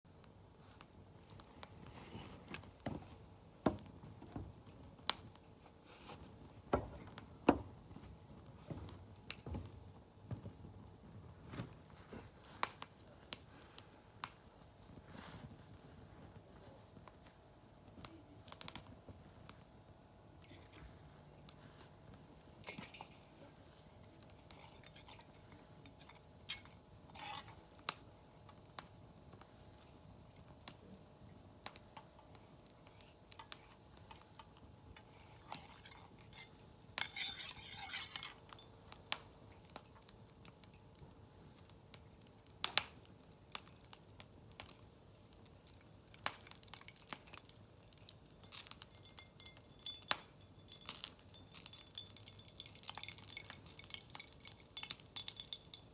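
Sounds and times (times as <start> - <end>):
metal utensils clinking: 24.5 - 27.6, 35.5 - 38.7, 48.0 - 55.9.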